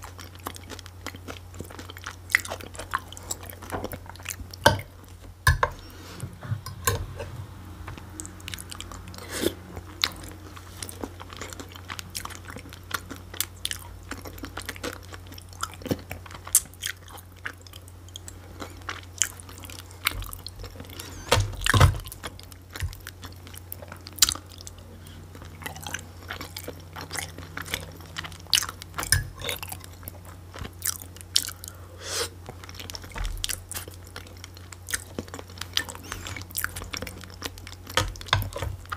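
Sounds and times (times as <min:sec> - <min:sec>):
steady low hum: 0:00.0 - 0:38.9
wet chewing clicks and smacks: 0:21.6 - 0:31.6, 0:32.5 - 0:38.9.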